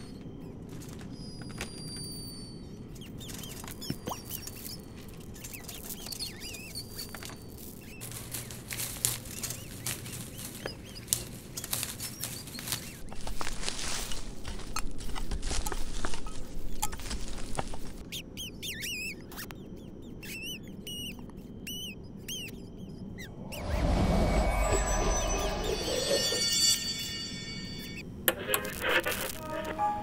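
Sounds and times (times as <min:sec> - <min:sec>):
small clicks and rustles: 0:00.0 - 0:02.4, 0:03.0 - 0:18.1
high squeaks and chirps: 0:18.1 - 0:28.5
steady low background: 0:23.0 - 0:28.0
low rumble: 0:23.2 - 0:28.0.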